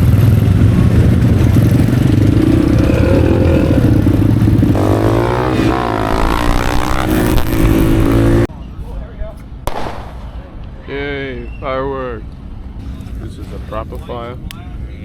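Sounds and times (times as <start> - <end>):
motorcycle engine revving: 0.0 - 8.5.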